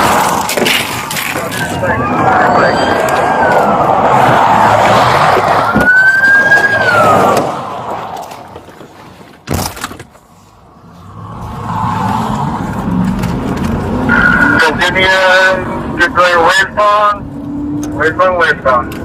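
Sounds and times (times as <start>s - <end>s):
vehicle rumble: 0.0s - 19.0s
emergency siren wailing: 0.7s - 8.3s, 11.2s - 17.9s.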